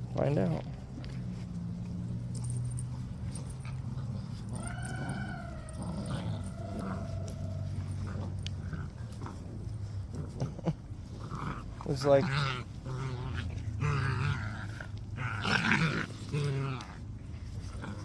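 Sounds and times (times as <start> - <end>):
puppies growling: 0.0 - 18.0
puppy whining: 1.0 - 11.0.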